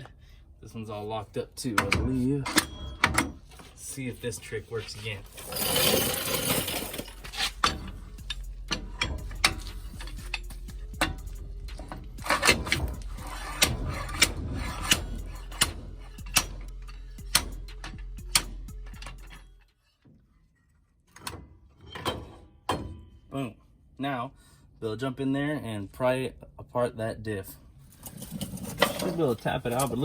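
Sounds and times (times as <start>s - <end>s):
steady low hum: 0.1s - 19.6s.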